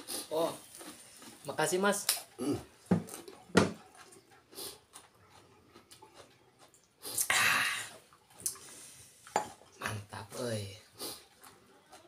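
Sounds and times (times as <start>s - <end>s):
eating clicks and smacks: 3.1s - 7.3s.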